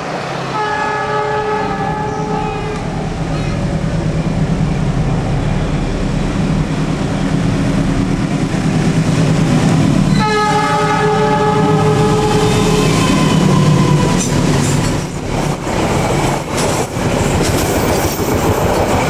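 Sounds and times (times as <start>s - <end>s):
train rumbling by: 0.0s - 19.0s
locomotive horn: 0.4s - 3.7s, 10.1s - 14.8s.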